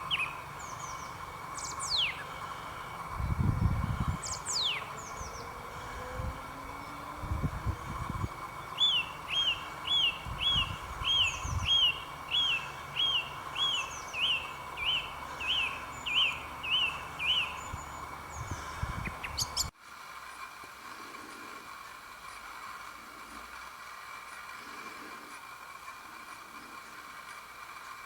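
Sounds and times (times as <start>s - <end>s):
songbird whistling: 0.0s - 3.1s, 3.9s - 7.2s, 8.2s - 19.7s.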